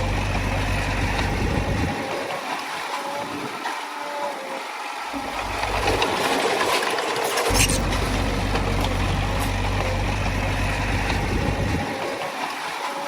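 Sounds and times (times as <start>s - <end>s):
heavy machinery diesel engine running: 0.0s - 2.4s, 5.1s - 12.4s
machinery clatter: 0.0s - 2.5s, 5.2s - 12.6s.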